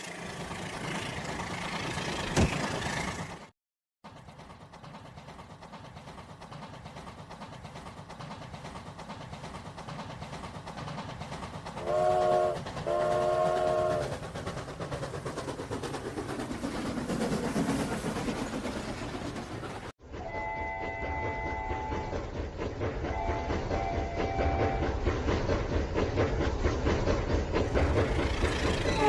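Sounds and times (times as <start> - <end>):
train wheel clatter: 0.1 - 29.0
train horn blasts: 11.8 - 14.1, 20.2 - 22.1, 23.1 - 24.9.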